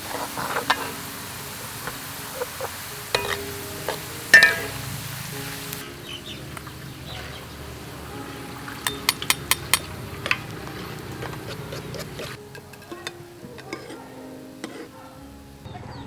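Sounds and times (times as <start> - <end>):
dishes and utensils clinking: 0.0 - 5.0, 8.2 - 15.4.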